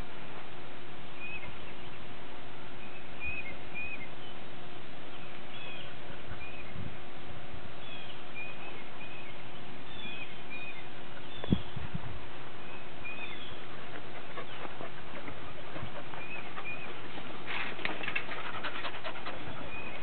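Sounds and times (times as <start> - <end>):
steady outdoor hiss: 0.0 - 20.0
small birds chirping: 2.8 - 6.9, 7.7 - 20.0.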